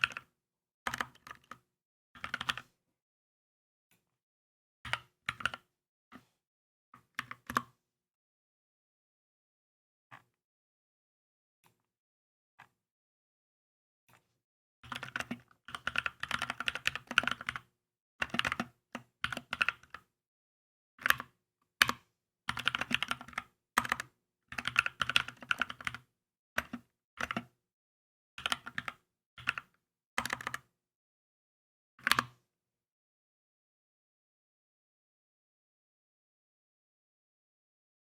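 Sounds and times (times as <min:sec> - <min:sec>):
mechanical keyboard typing: 0:14.9 - 0:17.6, 0:22.5 - 0:26.0, 0:28.4 - 0:30.6.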